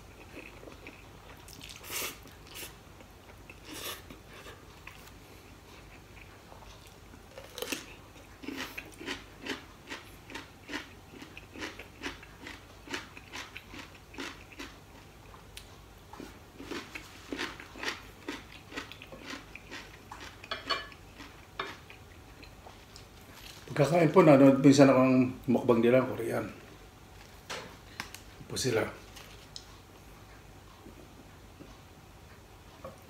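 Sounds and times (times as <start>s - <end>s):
chewing crunchy food: 0.0s - 23.9s, 29.0s - 31.0s.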